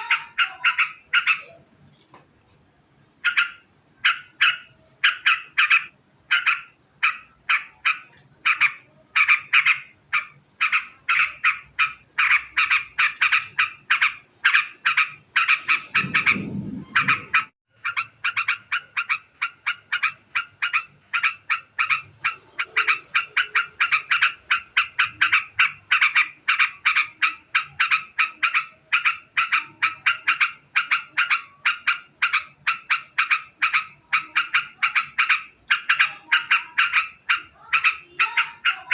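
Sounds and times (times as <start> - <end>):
bird fast chattering call: 3.2 - 38.9
low rumbling noise: 15.1 - 17.6.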